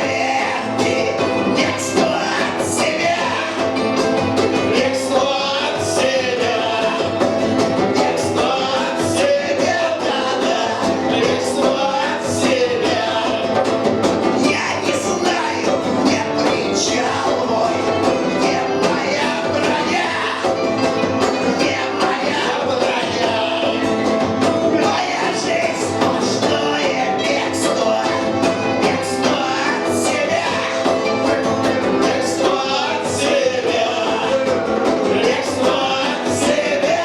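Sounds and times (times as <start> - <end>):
person singing: 0.0 - 37.0
punk rock band playing: 0.0 - 37.0.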